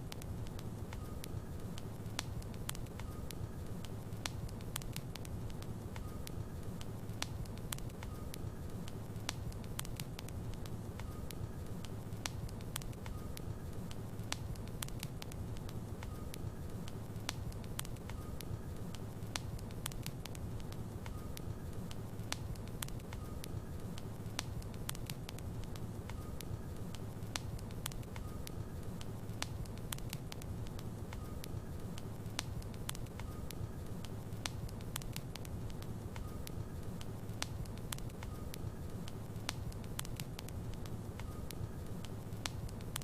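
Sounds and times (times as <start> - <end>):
wood crackling and popping: 0.0 - 43.0.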